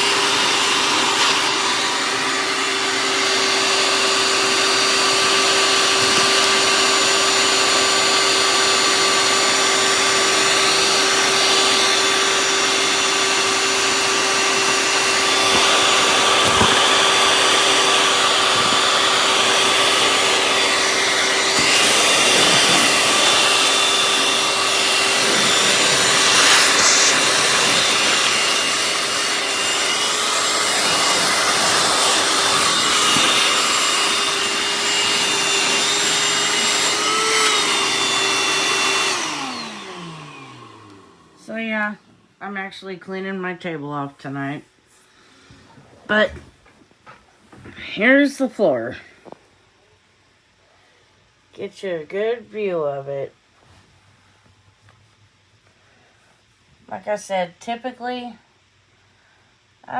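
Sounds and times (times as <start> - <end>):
shop vac motor whine and suction: 0.0 - 42.0.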